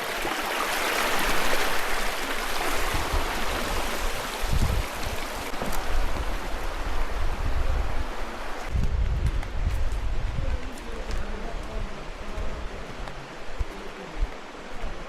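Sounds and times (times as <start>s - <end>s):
stream water rushing over rocks: 0.0s - 8.7s.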